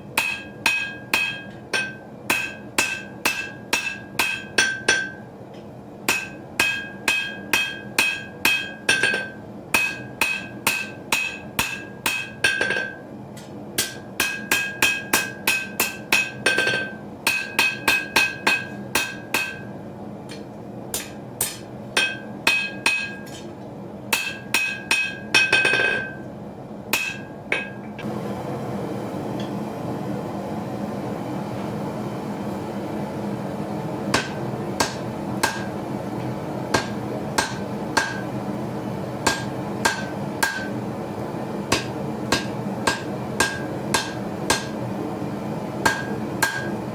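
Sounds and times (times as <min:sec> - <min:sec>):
hammer striking metal on anvil: 0:00.2 - 0:05.3, 0:06.0 - 0:13.0, 0:13.8 - 0:23.5, 0:24.1 - 0:26.3, 0:26.9 - 0:28.0, 0:34.1 - 0:35.8, 0:36.7 - 0:38.4, 0:39.2 - 0:40.8, 0:41.7 - 0:44.8, 0:45.8 - 0:46.8.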